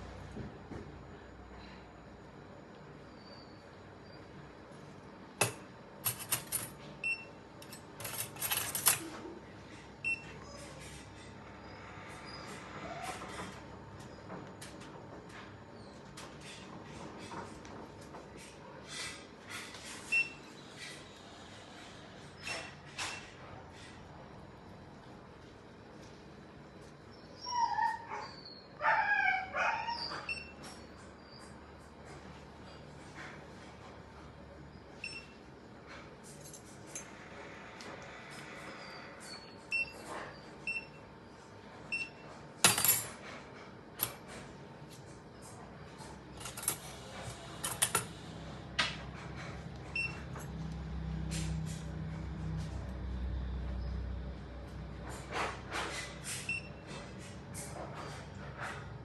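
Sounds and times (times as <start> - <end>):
metal instruments clinking: 6.0 - 6.8, 7.6 - 9.0
pet whining: 10.0 - 13.5, 27.0 - 31.5.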